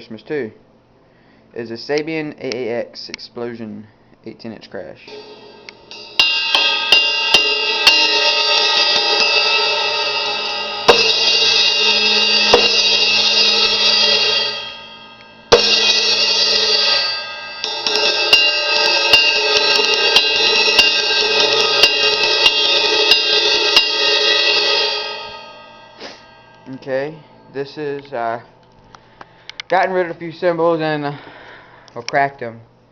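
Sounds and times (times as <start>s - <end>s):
crash cymbal light taps: 5.0s - 27.0s
crash cymbal hard crashes ringing: 5.1s - 27.9s.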